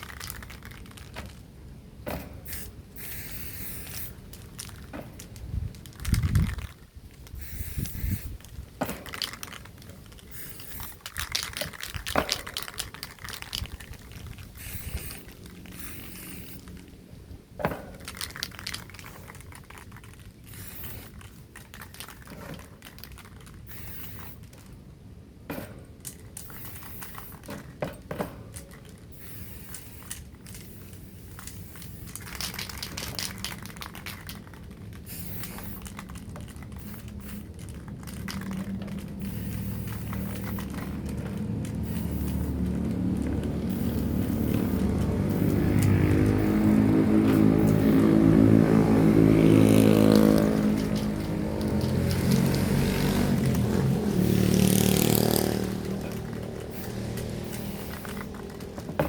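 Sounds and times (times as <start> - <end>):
crinkling and rustling: 0.0 - 1.5, 3.3 - 24.8, 25.8 - 59.0
hiss: 2.1 - 4.6, 7.4 - 9.5, 10.3 - 13.6, 14.4 - 16.8, 20.5 - 21.4, 23.6 - 24.5, 26.4 - 27.5, 29.1 - 34.1, 35.0 - 36.0, 39.2 - 41.0, 41.8 - 42.8, 43.4 - 48.2, 56.6 - 58.3.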